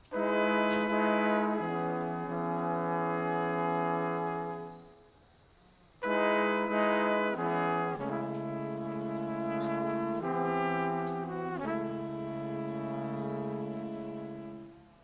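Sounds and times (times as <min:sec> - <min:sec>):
brass playing slow held chords: 0:00.0 - 0:05.2, 0:06.0 - 0:15.0.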